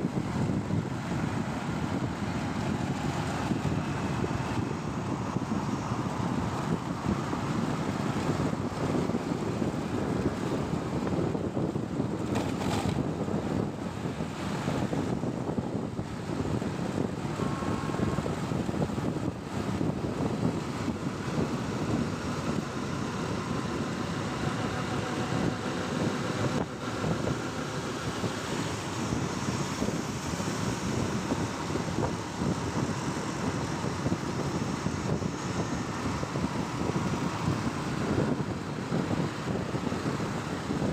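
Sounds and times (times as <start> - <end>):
motorcycle running: 0.0 - 40.9
road traffic: 0.0 - 40.9
wind noise on microphone: 0.0 - 40.9.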